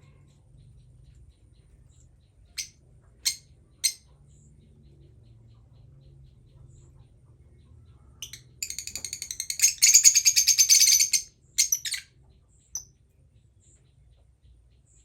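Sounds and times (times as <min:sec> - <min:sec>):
parrot chirping and chattering: 0:00.1 - 0:07.2, 0:08.2 - 0:12.9.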